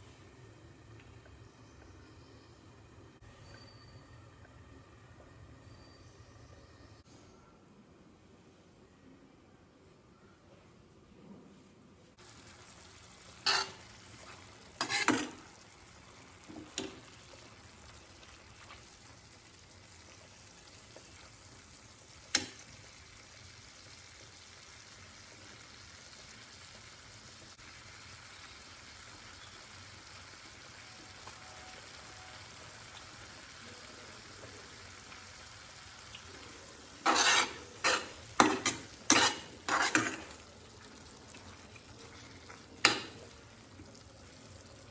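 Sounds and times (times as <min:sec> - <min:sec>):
food sizzling in a pan: 0:12.2 - 0:44.9
spatula clacking against pan: 0:37.1 - 0:40.3.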